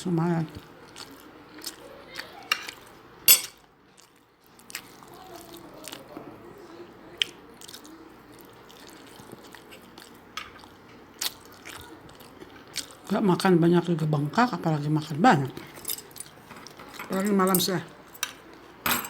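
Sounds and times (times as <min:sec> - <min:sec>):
person chewing food: 0:00.5 - 0:02.9, 0:03.6 - 0:06.2, 0:07.2 - 0:13.1.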